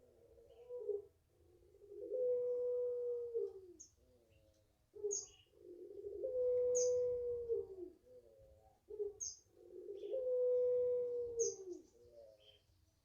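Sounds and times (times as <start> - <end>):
dove cooing: 0.0 - 12.6
small birds chirping: 3.8 - 5.6, 6.7 - 7.1, 8.4 - 10.3, 11.4 - 13.0.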